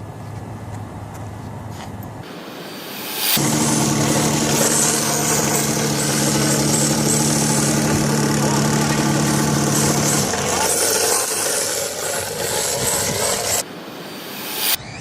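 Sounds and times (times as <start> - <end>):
engine idling: 3.2 - 13.6.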